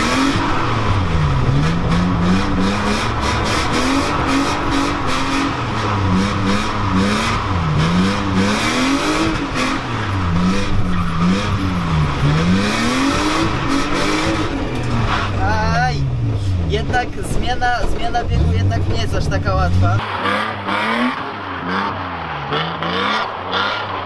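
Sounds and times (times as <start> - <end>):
car engine revving: 0.0 - 24.0
tyres squealing: 8.7 - 16.1.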